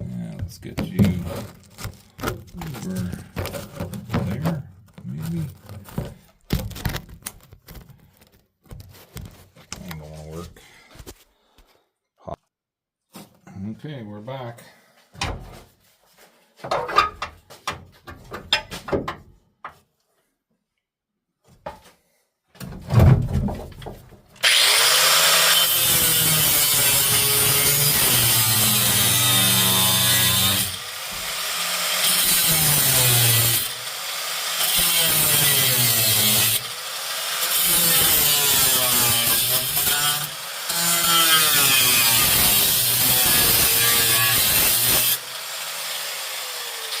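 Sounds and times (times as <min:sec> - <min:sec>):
handling knocks and thud: 0:00.4 - 0:07.9, 0:22.6 - 0:24.3
power tool cutting sheet metal: 0:24.4 - 0:47.0.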